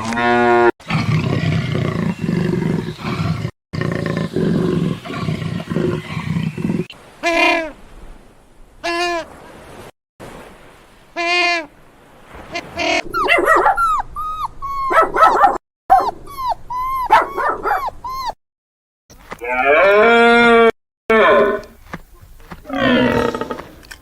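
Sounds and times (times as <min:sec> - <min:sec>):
pitched animal calls: 0:12.5 - 0:18.4
puppy yipping and whimpering: 0:13.0 - 0:18.4.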